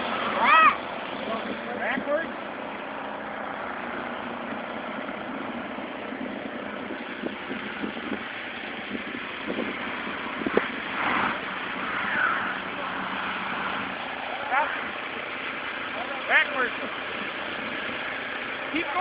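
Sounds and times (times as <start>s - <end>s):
car engine running: 0.0s - 19.0s
whine rising and falling: 9.8s - 15.0s.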